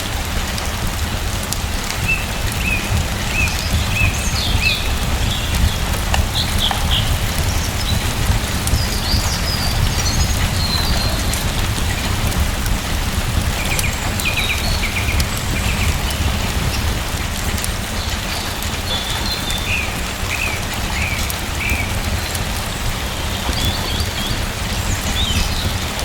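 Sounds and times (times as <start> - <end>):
steady rain falling: 0.0 - 26.0
deep rumble: 2.4 - 17.7.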